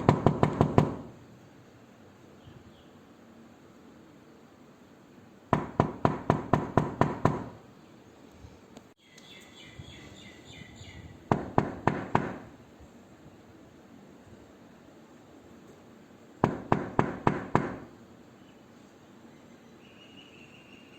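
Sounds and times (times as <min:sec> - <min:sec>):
knocking on a door: 0:00.0 - 0:01.2, 0:05.6 - 0:07.6, 0:11.3 - 0:12.5, 0:16.4 - 0:17.9.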